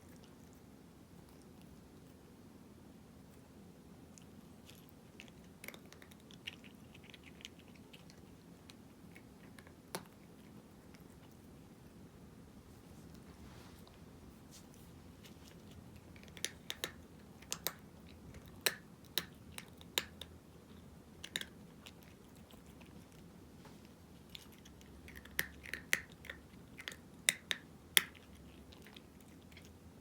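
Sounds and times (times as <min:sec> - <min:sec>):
cat crunching dry kibble: 0:04.1 - 0:12.0, 0:15.2 - 0:23.3, 0:23.9 - 0:29.9.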